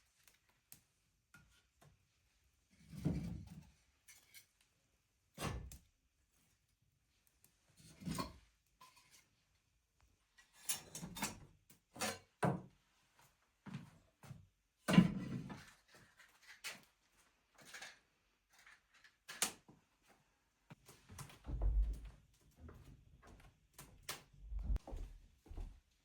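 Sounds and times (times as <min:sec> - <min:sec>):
objects knocking and clunking: 0:21.1 - 0:22.2, 0:24.4 - 0:24.9.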